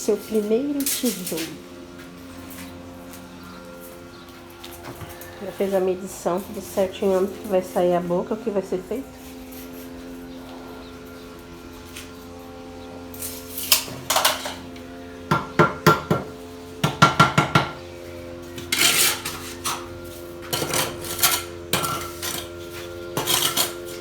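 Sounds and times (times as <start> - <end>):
steady low hum: 0.0 - 24.0
trowel scraping mortar and brick: 18.5 - 24.0.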